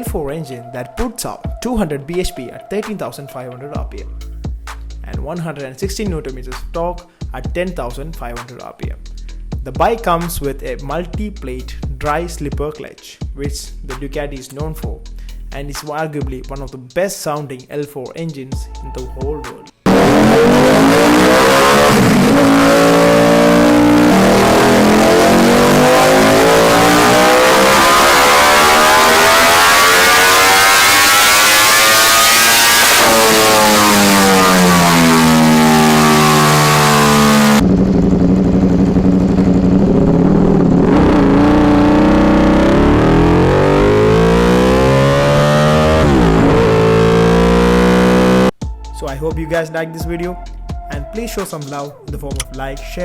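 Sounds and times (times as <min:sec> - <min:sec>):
motorcycle engine revving: 0:19.8 - 0:48.5.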